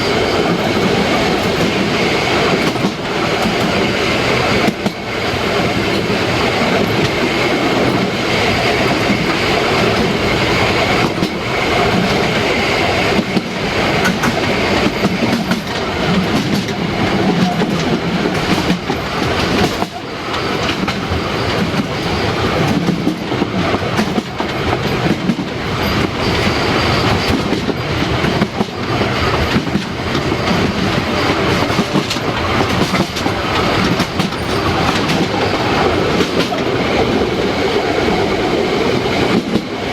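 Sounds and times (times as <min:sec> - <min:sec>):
train wheels clattering: 0:00.0 - 0:39.9
faint wheel squeal: 0:25.8 - 0:27.6.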